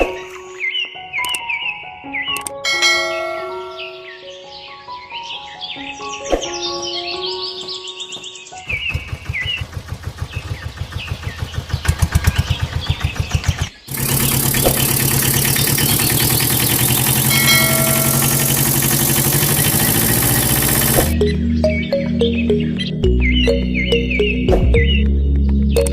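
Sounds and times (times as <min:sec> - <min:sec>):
engine cranking and running: 0:08.7 - 0:21.2.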